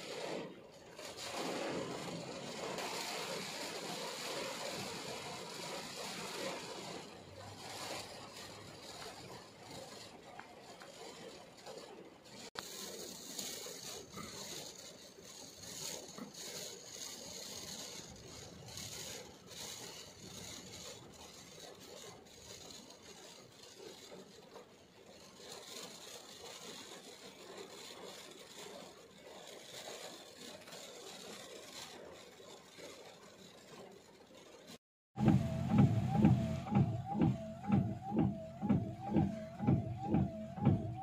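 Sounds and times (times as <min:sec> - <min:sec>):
heavy rain on car: 0:00.0 - 0:41.0
faint irregular taps: 0:35.2 - 0:41.0.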